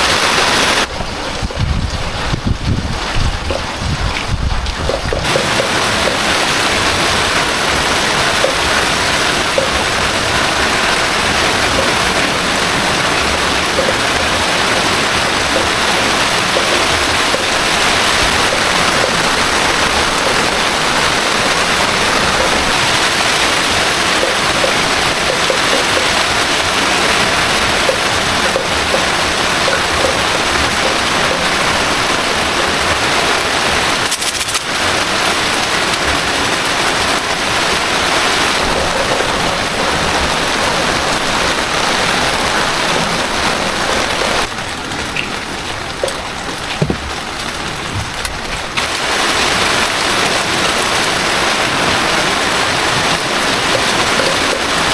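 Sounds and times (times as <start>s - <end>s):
heavy rain and running water: 0.0s - 54.9s.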